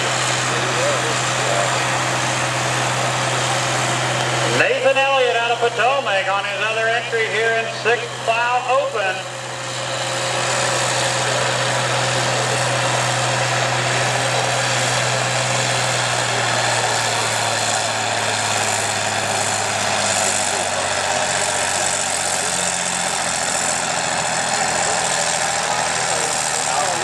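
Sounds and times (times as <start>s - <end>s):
diesel tractor engine idling: 0.0s - 27.0s.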